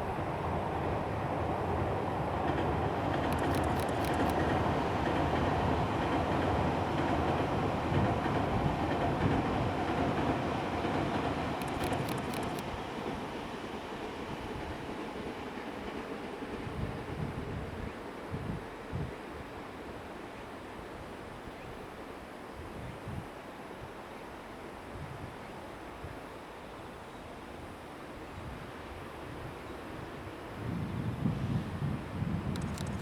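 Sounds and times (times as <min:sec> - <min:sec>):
electric train rumbling past: 0:00.0 - 0:19.8
rapid high clicks: 0:03.1 - 0:04.6, 0:11.0 - 0:12.6, 0:32.5 - 0:33.0.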